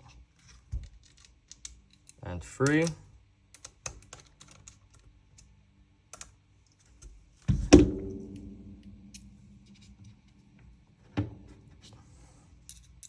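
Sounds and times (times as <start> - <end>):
metal gun parts clicking: 0.4 - 3.0
loud ringing metallic knock: 7.6 - 10.0.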